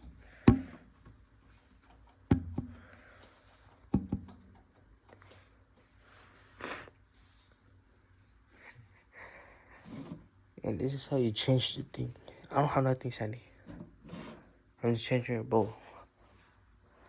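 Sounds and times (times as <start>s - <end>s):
hard objects knocking: 0.5s - 0.8s, 3.9s - 4.4s.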